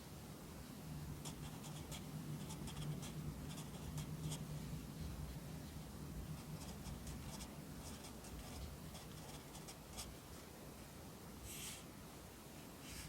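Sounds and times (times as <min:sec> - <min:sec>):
pencil scratching on paper: 0:01.2 - 0:04.5, 0:06.4 - 0:10.1.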